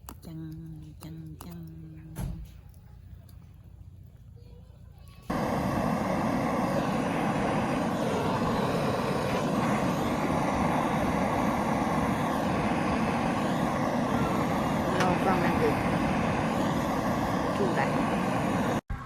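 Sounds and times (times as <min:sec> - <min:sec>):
loud steady rumbling: 0:05.3 - 0:19.0.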